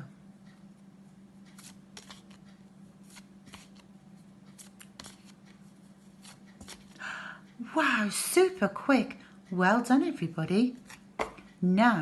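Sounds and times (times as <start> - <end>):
low steady hum: 0.0 - 12.0
paper flashcards flipping: 1.5 - 7.0.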